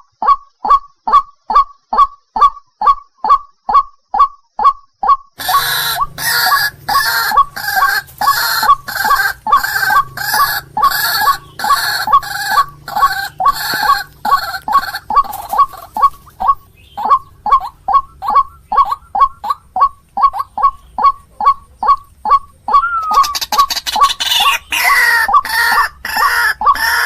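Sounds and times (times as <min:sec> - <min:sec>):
waterhen calls: 0:00.2 - 0:27.0
low hum: 0:05.4 - 0:24.0.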